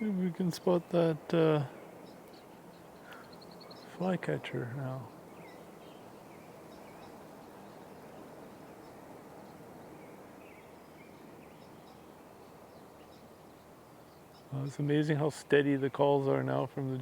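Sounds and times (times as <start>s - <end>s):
juvenile birds chirping: 0.0s - 17.0s
outdoor background noise: 0.0s - 17.0s.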